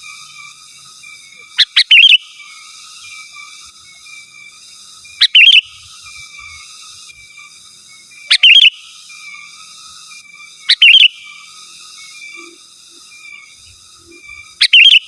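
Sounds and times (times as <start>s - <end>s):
bird singing warbling phrases: 1.6s - 2.4s, 5.2s - 5.8s, 8.3s - 8.9s, 10.7s - 11.4s, 14.6s - 15.0s.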